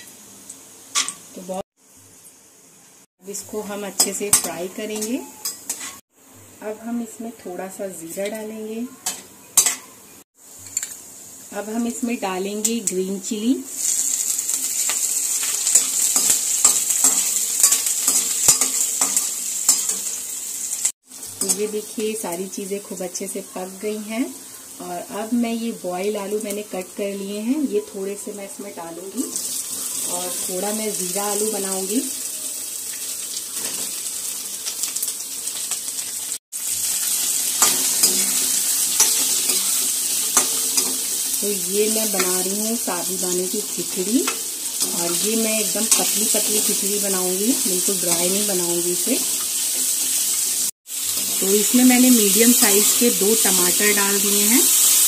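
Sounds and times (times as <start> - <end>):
food sizzling in oil: 0.0 - 55.0
spoon scraping against pan: 4.0 - 6.0, 14.7 - 20.2, 37.5 - 41.4.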